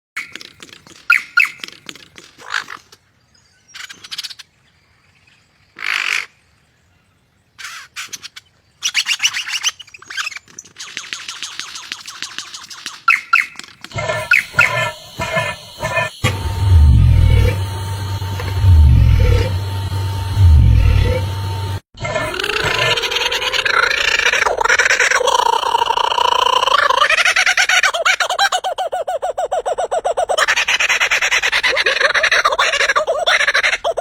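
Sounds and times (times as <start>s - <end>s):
rapid bird chattering: 0.2s - 3.0s, 7.6s - 16.2s
harsh bird calls: 7.6s - 16.7s
low rumble: 14.0s - 21.8s.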